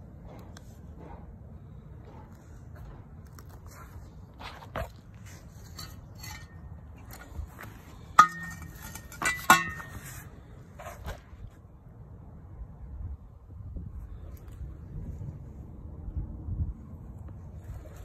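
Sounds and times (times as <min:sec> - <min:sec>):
metal pipe clanking: 0:05.6 - 0:07.4, 0:08.0 - 0:10.3.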